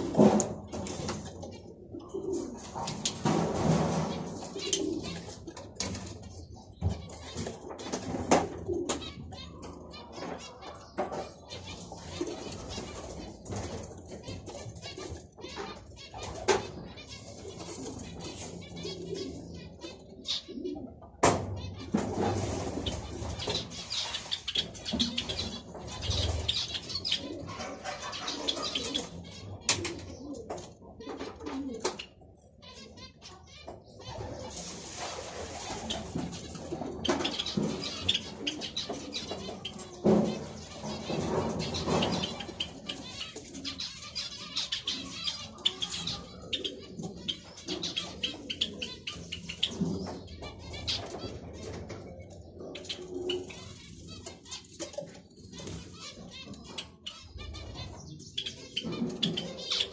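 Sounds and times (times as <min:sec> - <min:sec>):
finches chirping: 0:22.6 - 0:30.4, 0:35.7 - 0:54.7, 0:55.5 - 0:59.9.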